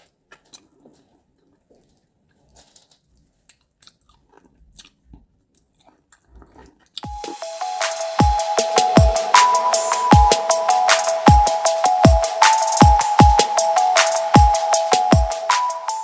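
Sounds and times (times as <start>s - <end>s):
chewing and wet mouth sounds: 0.0s - 7.1s
electronic dance music: 7.0s - 16.0s.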